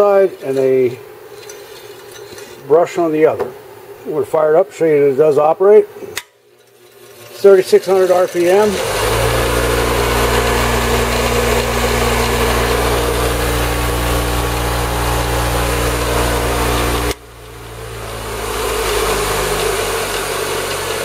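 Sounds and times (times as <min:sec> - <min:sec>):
bench grinder motor humming: 0:07.0 - 0:21.0.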